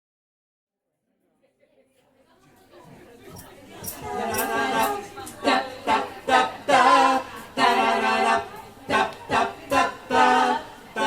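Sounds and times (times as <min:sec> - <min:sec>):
vocal trio singing a cappella: 0:02.8 - 0:11.0.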